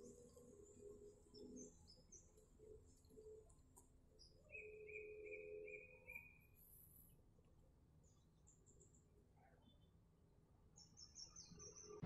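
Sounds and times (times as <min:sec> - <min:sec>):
faint bird chirps: 0:04.2 - 0:07.0.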